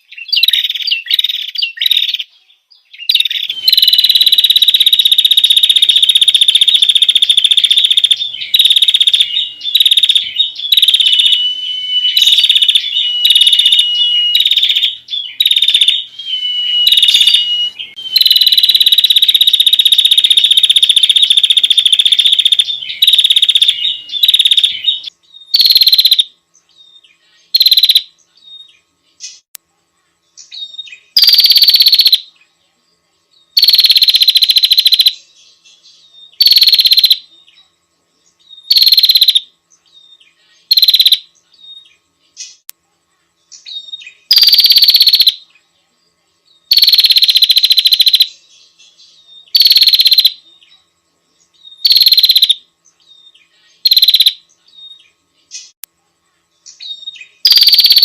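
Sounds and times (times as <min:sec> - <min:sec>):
bird trilling calls: 0:03.0 - 0:26.3, 0:30.7 - 0:32.2, 0:38.7 - 0:39.4, 0:40.7 - 0:41.2, 0:51.8 - 0:52.6, 0:53.8 - 0:54.4, 0:56.8 - 0:58.0.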